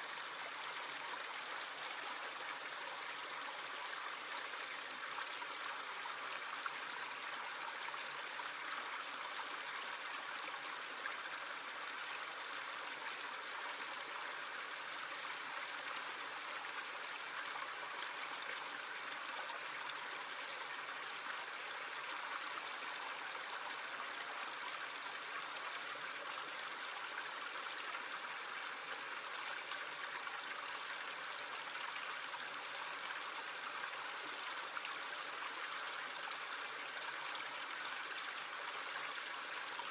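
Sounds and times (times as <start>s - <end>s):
creek water rushing: 0.0s - 39.9s.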